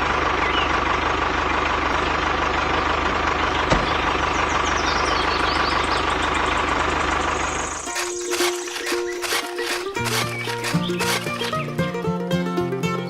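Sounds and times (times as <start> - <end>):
small engine knocking: 0.4 - 12.3
sharp click: 7.9 - 11.7.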